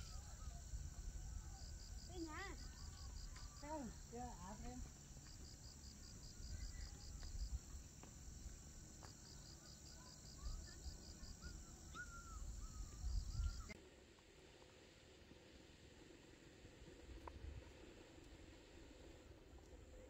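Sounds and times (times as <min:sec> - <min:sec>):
crickets chirping: 0:00.0 - 0:13.8.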